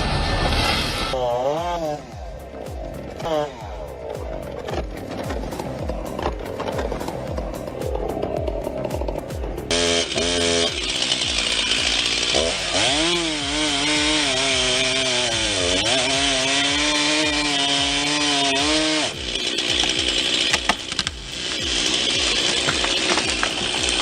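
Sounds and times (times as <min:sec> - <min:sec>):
chainsaw running at high revs: 0:00.0 - 0:04.8, 0:09.7 - 0:24.0
cracks and knocks: 0:22.4 - 0:24.0.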